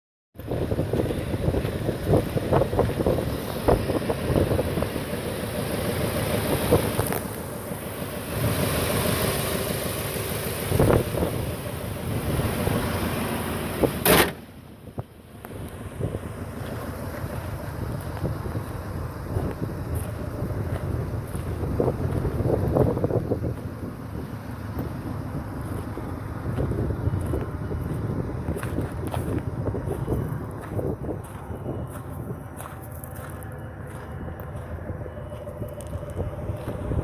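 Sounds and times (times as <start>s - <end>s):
wind rumbling on microphone: 0.4s - 5.2s, 10.6s - 13.0s, 14.8s - 37.0s
pickup truck engine idling: 0.4s - 37.0s.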